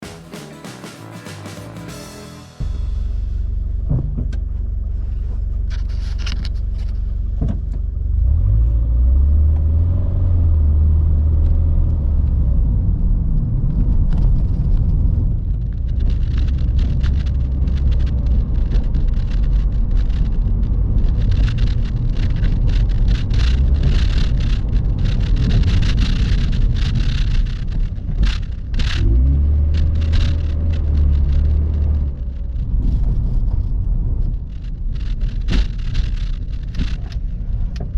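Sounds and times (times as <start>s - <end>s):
car engine idling: 0.0s - 8.4s, 15.1s - 37.9s
irregular scratchy noise: 15.4s - 37.9s.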